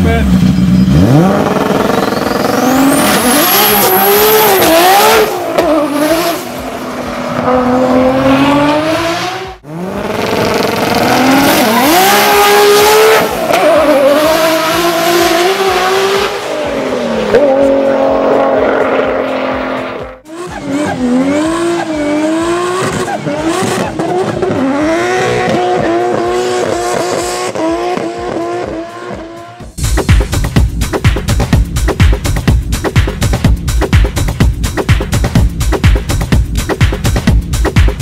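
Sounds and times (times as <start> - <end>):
racing car engine accelerating: 0.0 - 29.8.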